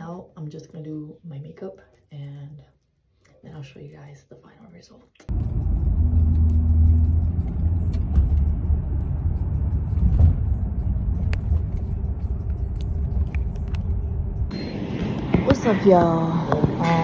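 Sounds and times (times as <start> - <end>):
car rumbling in motion: 5.3 - 17.0.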